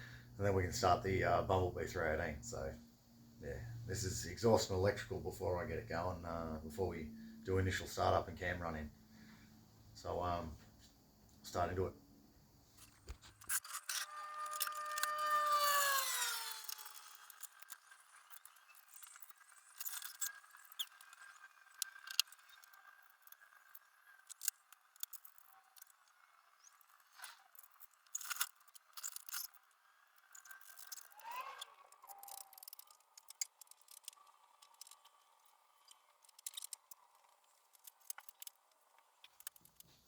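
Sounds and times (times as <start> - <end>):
spinning tool whine: 12.7 - 40.0
metallic clicks and scrapes: 12.8 - 40.0.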